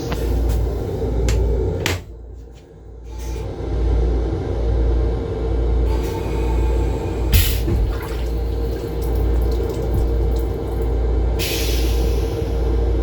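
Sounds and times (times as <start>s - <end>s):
low rumble of moving train: 0.0s - 13.0s
sink faucet running: 7.7s - 11.0s.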